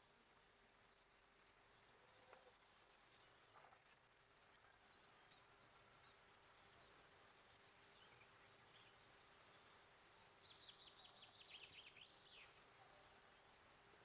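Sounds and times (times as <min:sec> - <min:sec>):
songbird singing: 0:06.0 - 0:13.6.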